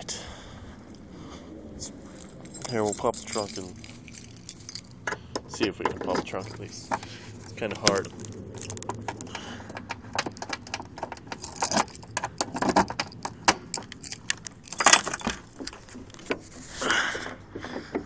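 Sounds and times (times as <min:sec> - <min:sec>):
keys jangling and clicking: 0:02.1 - 0:16.3.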